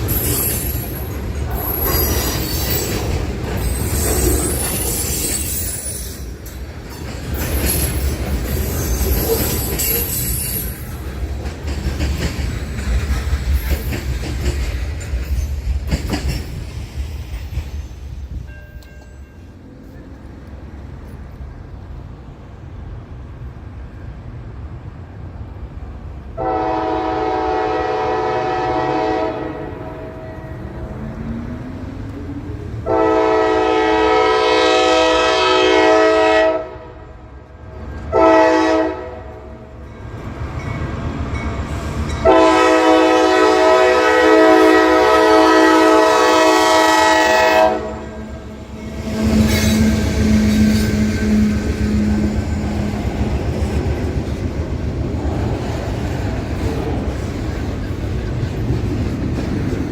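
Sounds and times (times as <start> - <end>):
train rumbling: 0.0 - 59.9
locomotive engine passing: 25.2 - 35.8, 39.3 - 59.9
locomotive air horn blasts: 26.4 - 30.6, 32.8 - 37.1, 38.1 - 39.5, 42.2 - 52.4.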